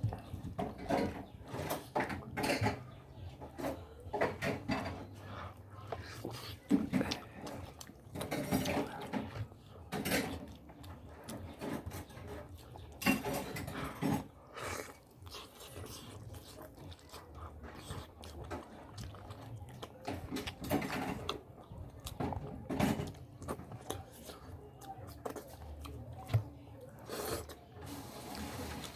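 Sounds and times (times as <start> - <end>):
person chewing and biting: 5.0 - 11.6, 14.2 - 27.7.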